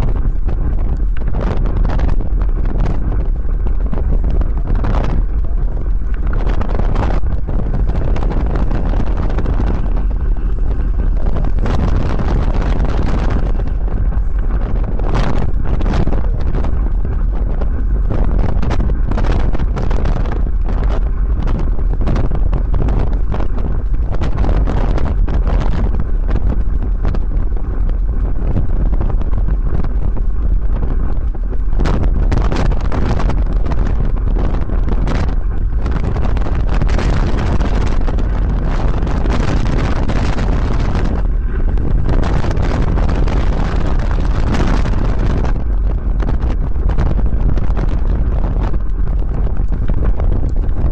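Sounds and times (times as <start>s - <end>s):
wind buffeting microphone: 0.0s - 50.9s.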